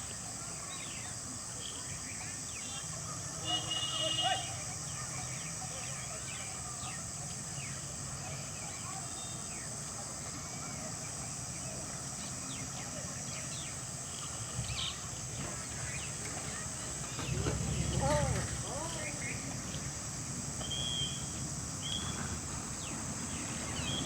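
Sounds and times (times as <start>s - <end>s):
steady high hiss: 0.0s - 24.0s
birds chirping: 12.2s - 19.6s.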